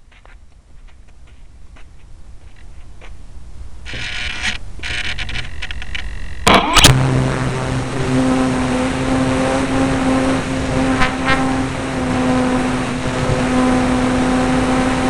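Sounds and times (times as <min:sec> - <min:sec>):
model airplane motor running: 0:03.9 - 0:15.0.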